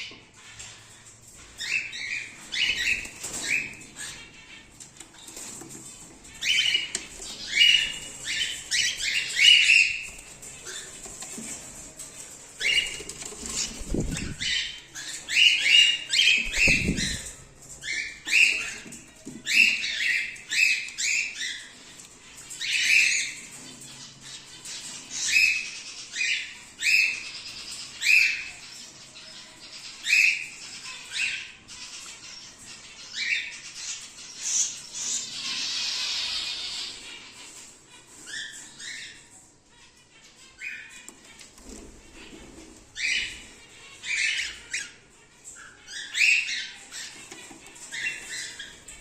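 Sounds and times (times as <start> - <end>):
cockatiels calling shrilly: 1.6 - 5.7, 6.3 - 11.6, 12.6 - 21.9, 22.5 - 49.0
wings flapping: 10.0 - 14.7, 16.2 - 17.5.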